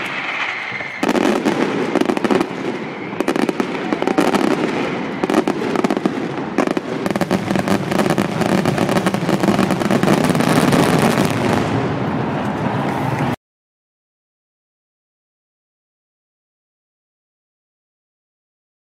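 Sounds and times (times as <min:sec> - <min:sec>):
fireworks banging and crackling: 0:00.0 - 0:13.4.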